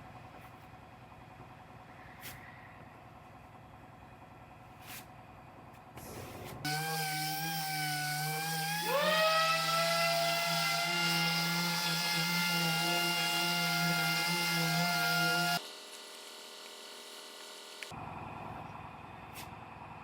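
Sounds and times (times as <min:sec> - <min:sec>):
power tool motor whirring: 0:06.6 - 0:17.9.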